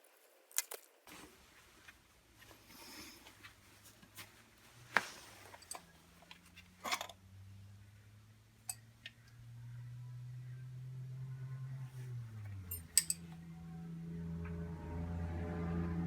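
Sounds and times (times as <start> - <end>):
faint low hum: 1.1 - 16.0.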